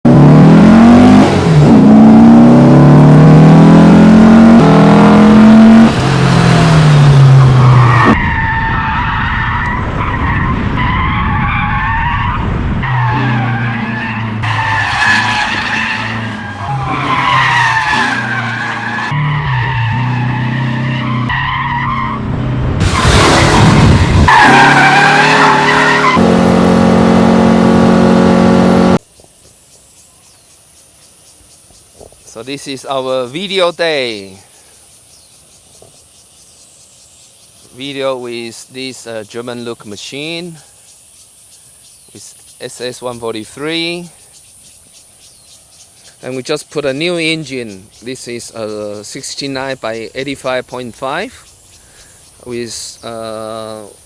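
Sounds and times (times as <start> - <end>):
car engine revving: 0.1 - 8.2, 12.9 - 21.3, 22.0 - 29.0
tyres squealing: 12.9 - 22.0, 24.3 - 26.2.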